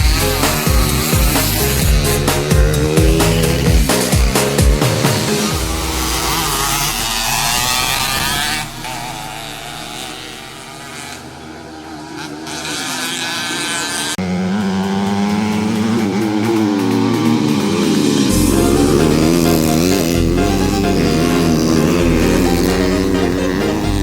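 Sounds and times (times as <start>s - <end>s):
motocross bike engines revving: 0.0s - 24.0s.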